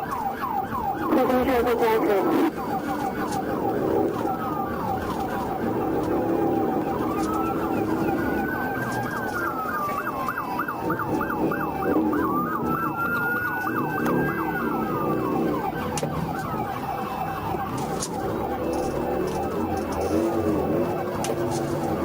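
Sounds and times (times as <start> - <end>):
police siren wailing and yelping: 0.0 - 22.0
vehicle road noise: 0.0 - 22.0.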